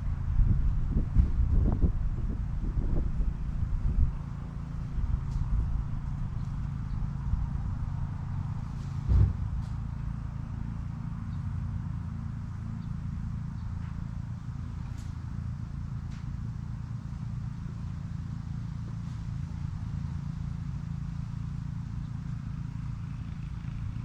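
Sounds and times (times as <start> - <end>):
engine idling: 0.0 - 24.0
loud thump: 9.0 - 9.6.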